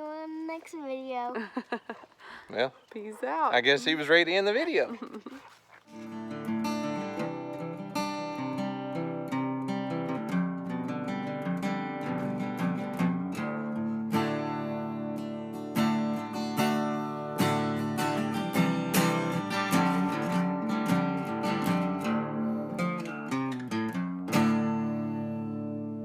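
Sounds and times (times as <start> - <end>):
acoustic guitar strumming chords: 6.0 - 26.0.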